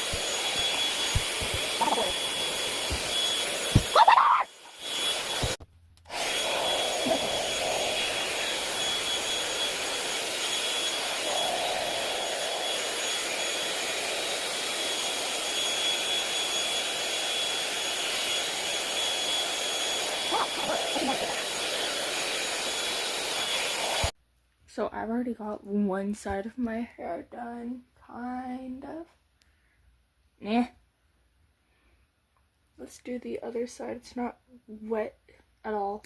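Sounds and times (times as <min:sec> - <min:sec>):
hair dryer blowing with whine: 0:00.0 - 0:24.2.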